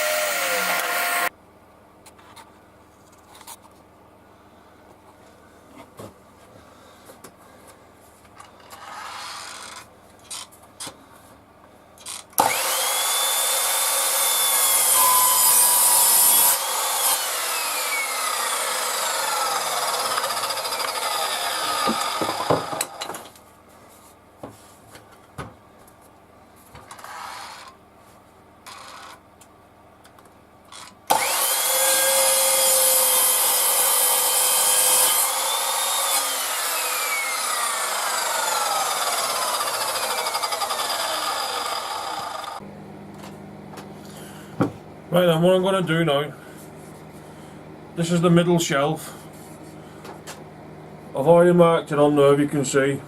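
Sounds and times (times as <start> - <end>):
electric saw cutting wood: 0.0 - 1.3, 12.4 - 23.2, 31.1 - 42.6.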